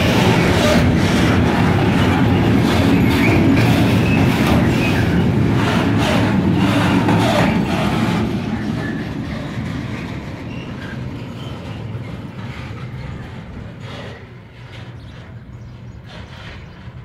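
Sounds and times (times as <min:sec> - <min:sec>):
train wheels clattering: 0:00.0 - 0:17.0
faint wheel squeals: 0:10.0 - 0:17.0.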